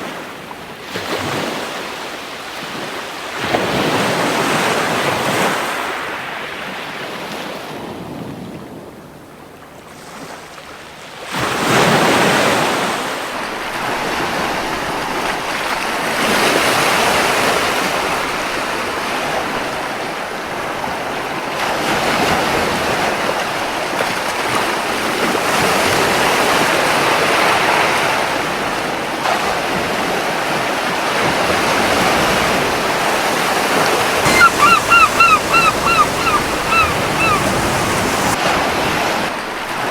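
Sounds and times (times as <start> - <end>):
ocean surf washing on beach: 30.4 - 39.3
wave breaking: 32.6 - 38.4.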